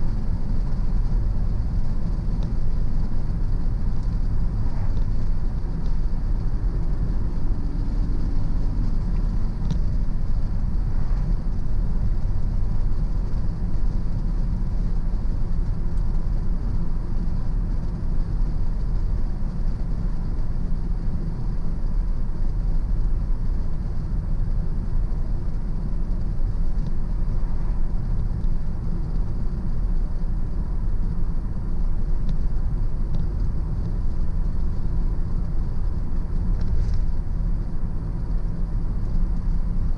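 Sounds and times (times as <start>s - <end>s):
car driving tyre and engine rumble: 0.0s - 39.9s.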